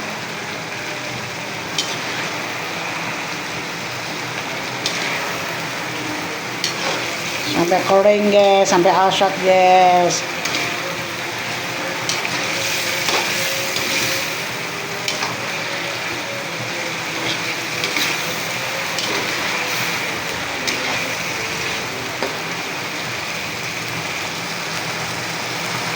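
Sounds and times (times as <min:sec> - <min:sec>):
food sizzling in a pan: 0:00.0 - 0:25.9.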